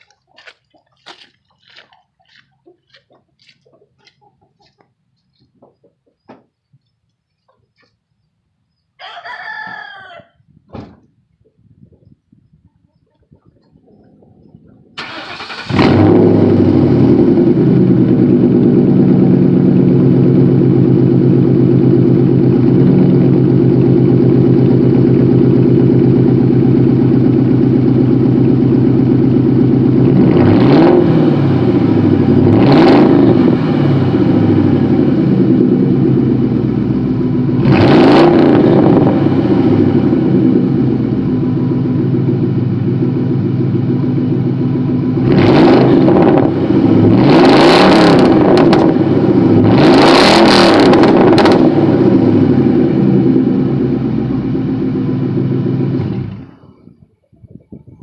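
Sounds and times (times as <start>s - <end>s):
loud car engine idling: 14.6s - 49.9s, 50.8s - 56.9s
car engine cranking: 15.0s - 17.6s
engine revving blips: 30.0s - 56.8s.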